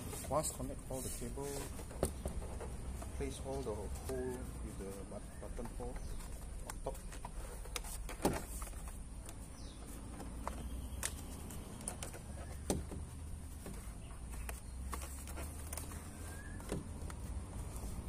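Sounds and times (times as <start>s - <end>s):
plastic panel clicks and knocks: 10.1s - 13.8s.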